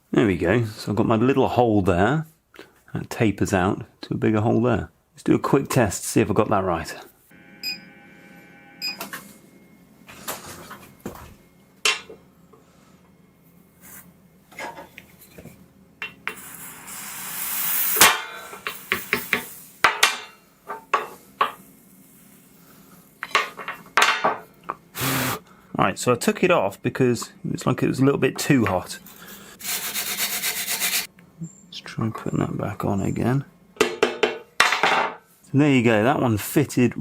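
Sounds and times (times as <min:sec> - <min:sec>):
hiss: 0:16.3 - 0:19.9, 0:25.0 - 0:25.4.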